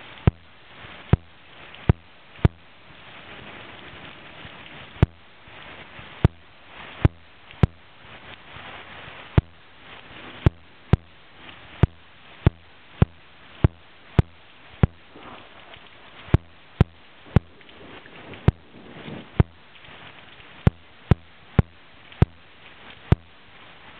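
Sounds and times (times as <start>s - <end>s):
steady hiss: 0.0s - 23.9s
sharp clicks or taps: 10.4s - 11.2s, 11.8s - 15.1s, 16.3s - 17.5s, 20.6s - 22.4s, 23.1s - 23.3s.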